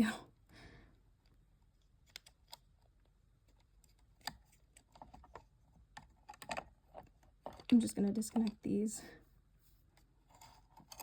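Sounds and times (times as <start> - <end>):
small plastic parts clicking: 1.2 - 8.6.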